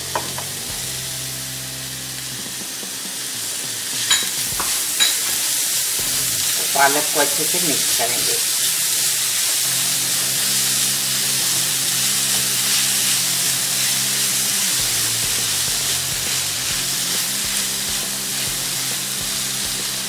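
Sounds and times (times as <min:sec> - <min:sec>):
spinach sizzling in a pan: 0:00.0 - 0:20.0
spatula stirring: 0:03.9 - 0:09.8, 0:10.4 - 0:20.0.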